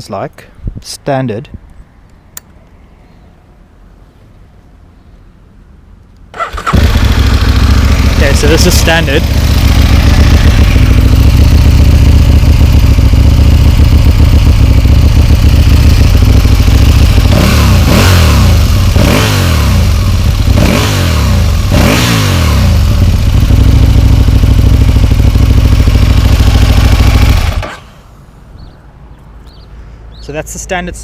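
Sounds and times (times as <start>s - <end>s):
motorcycle engine revving: 6.3s - 28.1s
motorcycle engine idling: 6.4s - 28.8s.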